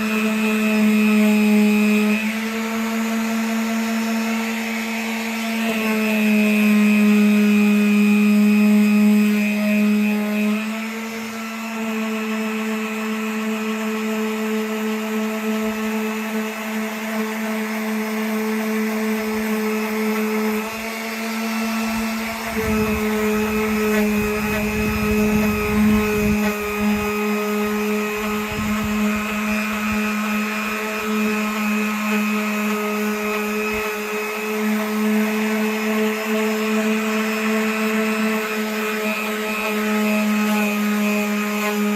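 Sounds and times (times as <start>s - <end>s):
electric sander on wood: 0.0s - 41.9s.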